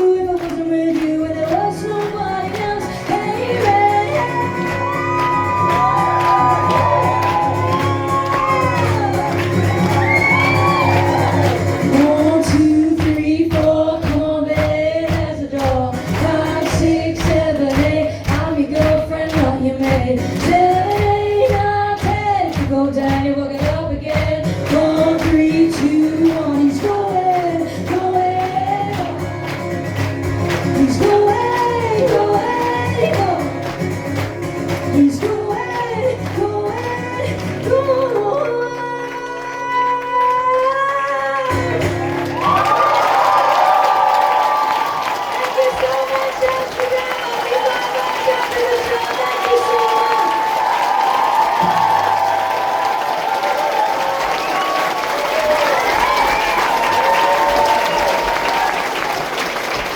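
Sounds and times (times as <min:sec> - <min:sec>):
person singing: 0:00.0 - 0:29.6, 0:30.4 - 0:42.6
live band playing hoedown song: 0:01.6 - 0:12.8, 0:41.0 - 0:47.7
people shouting: 0:04.8 - 0:11.6.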